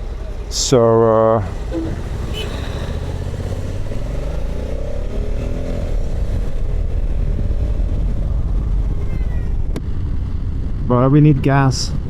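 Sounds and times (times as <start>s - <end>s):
motorcycle engine running: 1.4s - 10.8s.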